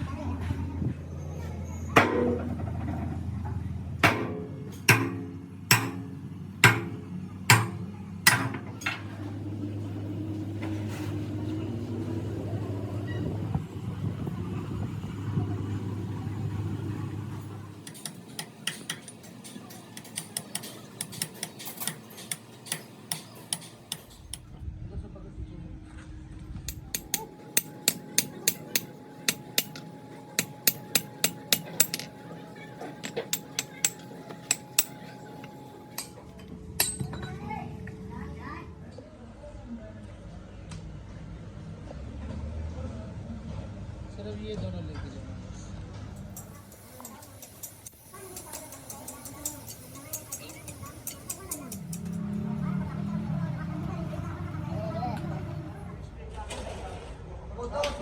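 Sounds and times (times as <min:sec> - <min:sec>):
hammer striking steel: 0:02.0 - 0:02.6, 0:04.0 - 0:09.0, 0:17.8 - 0:24.5, 0:26.7 - 0:37.3, 0:46.3 - 0:52.2.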